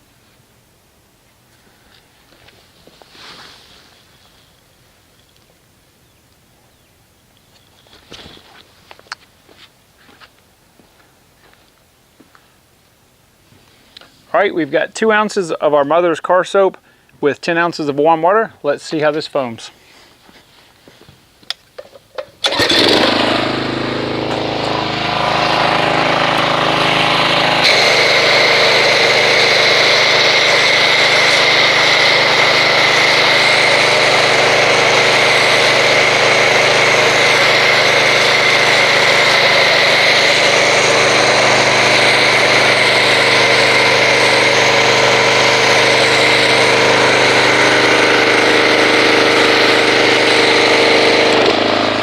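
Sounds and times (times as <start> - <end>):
pressure washer clicks: 21.5 - 23.6
pressure washer droning: 22.4 - 52.0.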